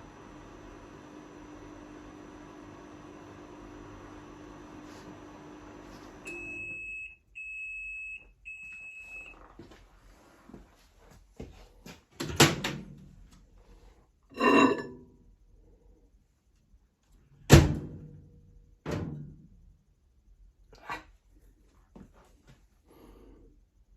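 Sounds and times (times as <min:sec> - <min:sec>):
microwave oven humming: 0:00.0 - 0:07.2.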